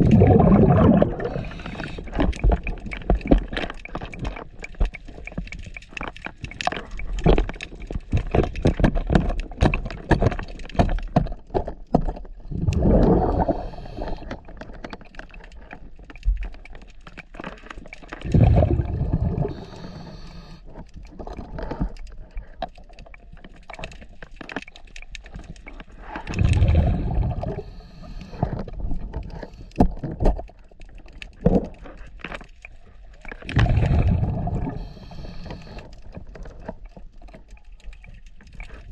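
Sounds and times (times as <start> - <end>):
underwater exhaled bubbles: 0.0 - 8.7, 12.3 - 16.8, 17.8 - 24.0, 25.2 - 32.0, 32.6 - 38.9.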